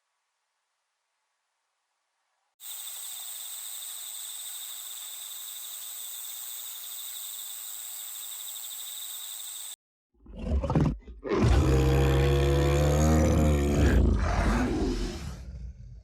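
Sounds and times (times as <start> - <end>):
insect trilling: 2.6 - 9.8.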